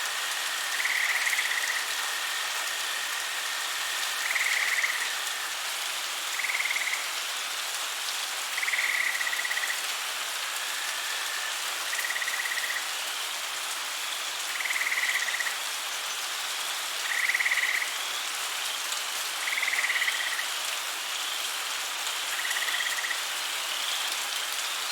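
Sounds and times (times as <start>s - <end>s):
steady rain-like hiss: 0.0s - 24.9s
higher frog chirps: 0.6s - 5.4s, 6.4s - 7.1s, 8.6s - 9.8s, 11.3s - 12.8s, 14.6s - 15.5s
frog trilled call: 0.7s - 3.3s, 4.0s - 5.2s, 6.4s - 7.0s, 8.6s - 9.8s.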